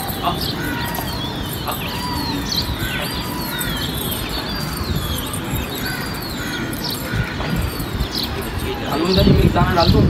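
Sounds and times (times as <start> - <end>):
birds whistling falling calls: 0.0 - 10.0.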